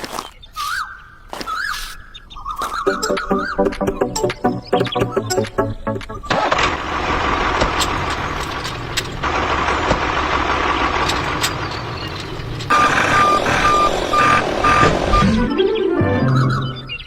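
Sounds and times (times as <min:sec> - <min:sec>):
truck engine running: 0:03.0 - 0:16.7
reversing alarm beeping: 0:12.7 - 0:17.0.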